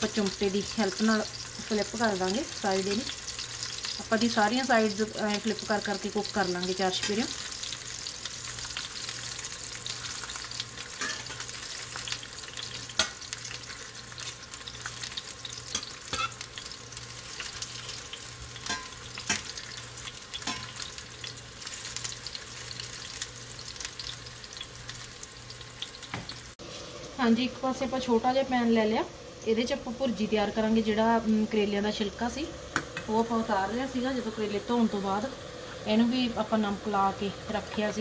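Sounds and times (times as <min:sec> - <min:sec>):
vegetables sizzling in oil: 0:00.0 - 0:38.0
metal tongs clicking on pan: 0:18.6 - 0:20.9.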